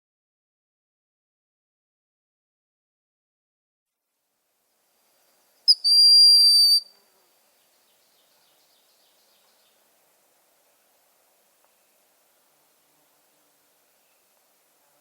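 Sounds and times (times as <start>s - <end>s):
bird whistling high note: 5.7s - 6.9s.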